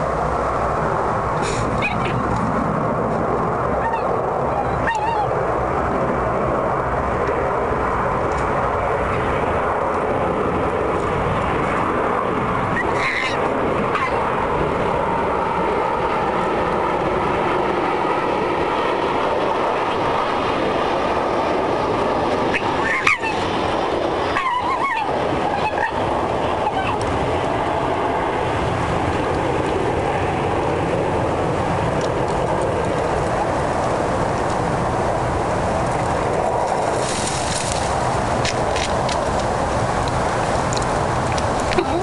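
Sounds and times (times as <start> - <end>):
steady background noise: 0.0 - 42.0
fox honking calls: 1.5 - 2.3, 3.8 - 5.3, 12.8 - 14.2, 22.5 - 23.5, 24.3 - 27.0.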